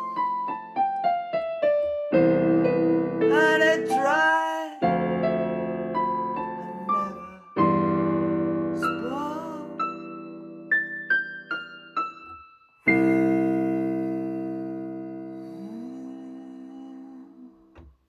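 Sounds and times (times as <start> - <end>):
person singing: 0.0 - 0.7, 3.1 - 5.3, 6.2 - 8.0, 8.7 - 10.2, 12.9 - 17.8
piano music: 0.0 - 17.8.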